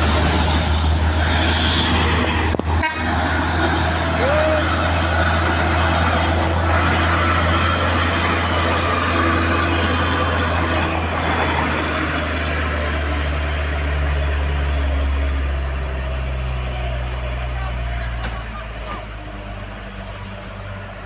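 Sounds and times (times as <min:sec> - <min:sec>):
diesel truck engine drone: 0:00.0 - 0:21.0
road noise: 0:00.0 - 0:21.0.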